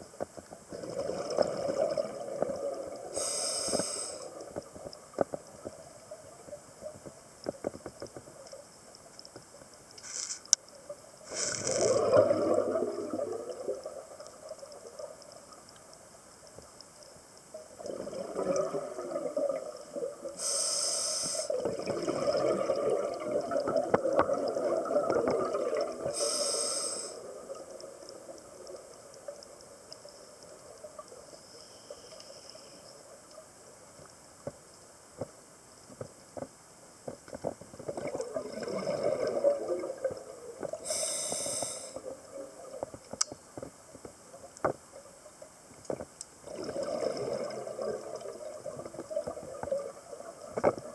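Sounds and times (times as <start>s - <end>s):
exhaled bubbles underwater: 0.7s - 3.4s, 11.3s - 15.6s, 17.5s - 20.4s, 21.4s - 31.2s, 37.8s - 43.2s, 46.4s - 50.9s
regulator hissing inhalations: 3.1s - 4.4s, 10.0s - 10.4s, 11.3s - 11.9s, 20.4s - 21.6s, 26.1s - 27.2s, 40.8s - 42.0s.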